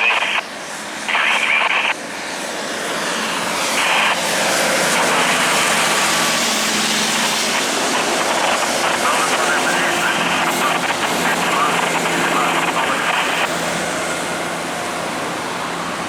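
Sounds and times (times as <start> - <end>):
diesel truck pulling uphill: 10.1 - 16.0.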